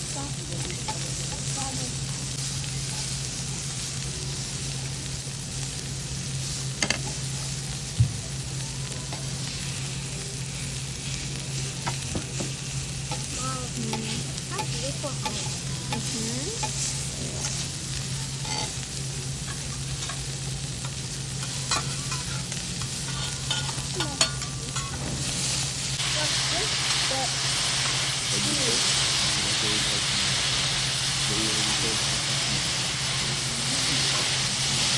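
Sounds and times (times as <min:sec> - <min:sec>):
food sizzling on a griddle: 0:00.0 - 0:34.9
spatula clicking on hot plate: 0:19.4 - 0:25.0.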